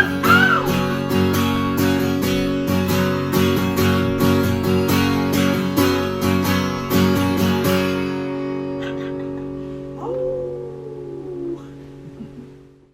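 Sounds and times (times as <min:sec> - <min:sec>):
acoustic guitar strumming: 0:00.0 - 0:07.5.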